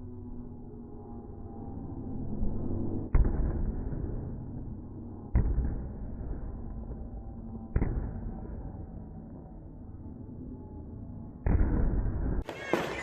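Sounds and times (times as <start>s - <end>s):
rumble of fireworks display: 3.1s - 9.5s, 11.4s - 13.0s.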